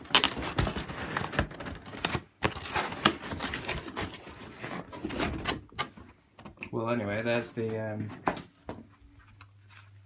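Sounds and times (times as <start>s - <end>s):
cardboard packaging rustling: 0.0s - 6.2s.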